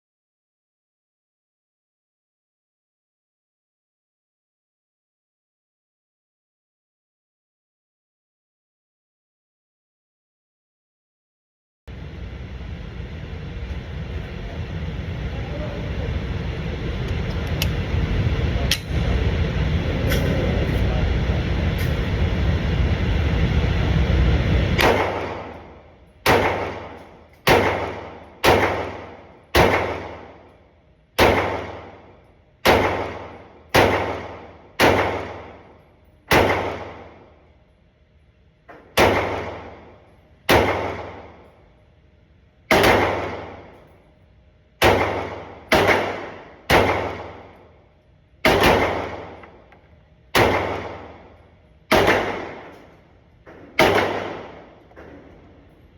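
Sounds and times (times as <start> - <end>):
steady loud noise: 11.9 - 55.9
pistol shots echoing: 24.8 - 30.5, 31.2 - 37.4, 38.8 - 41.5, 42.7 - 43.9, 44.8 - 47.7, 48.4 - 49.7, 50.3 - 53.0, 53.6 - 55.3.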